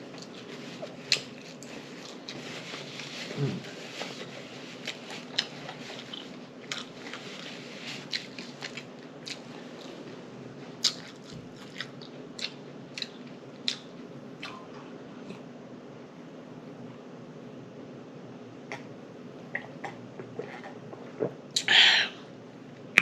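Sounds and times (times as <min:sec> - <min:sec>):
person chewing food: 0:00.1 - 0:10.1, 0:10.8 - 0:14.6.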